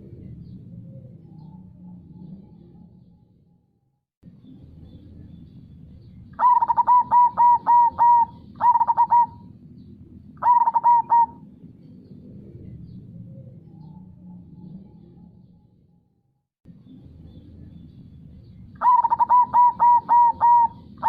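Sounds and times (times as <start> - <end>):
dove cooing: 6.4 - 9.6, 10.4 - 11.5, 18.8 - 21.0.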